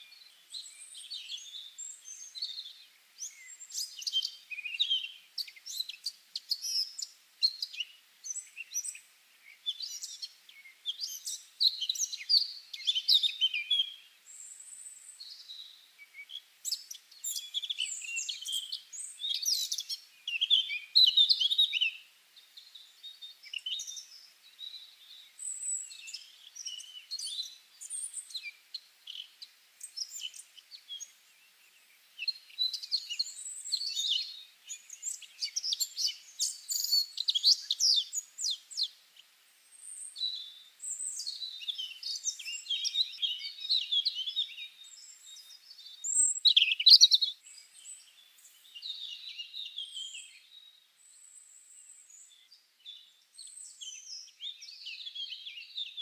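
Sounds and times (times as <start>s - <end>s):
birds chirping and singing: 0.1s - 56.0s.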